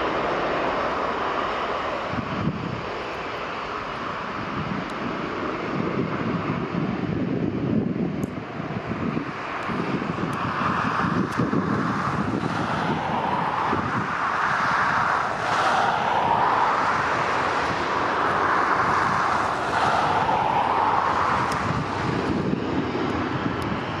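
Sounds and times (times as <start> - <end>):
jet engines roaring: 0.0 - 24.0
wind buffeting microphone: 0.0 - 24.0.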